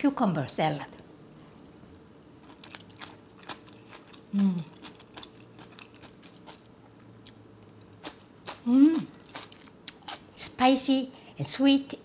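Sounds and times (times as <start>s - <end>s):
crunchy chewing of cucumber: 1.3s - 10.4s
person humming: 4.3s - 4.7s, 8.7s - 9.1s.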